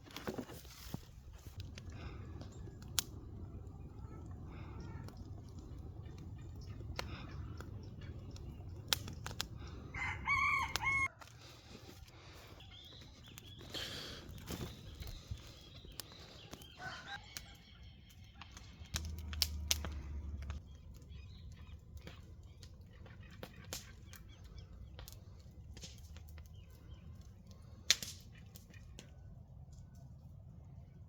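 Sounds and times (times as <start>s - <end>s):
low rumble: 1.5s - 10.0s, 19.0s - 21.1s
sharp clicks and cracks: 1.6s - 3.2s, 4.5s - 9.8s, 18.4s - 21.1s, 21.9s - 29.1s
chicken call: 9.9s - 11.1s.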